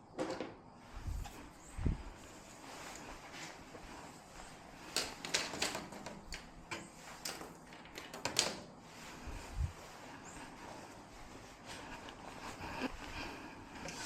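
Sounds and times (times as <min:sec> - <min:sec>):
sharp clicks and light knocks: 0:04.9 - 0:08.8.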